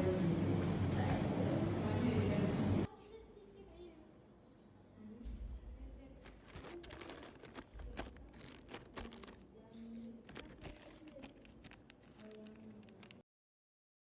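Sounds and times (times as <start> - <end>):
faint clicks and crinkling: 6.2 - 13.2.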